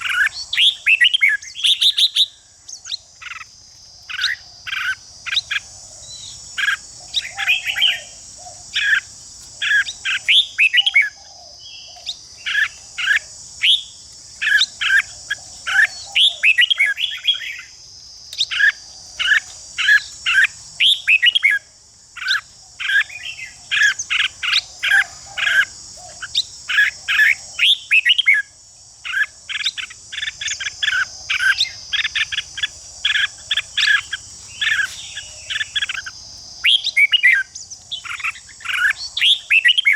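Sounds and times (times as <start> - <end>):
birds chattering calls: 0.0 - 39.9
steady high hiss: 0.0 - 39.9.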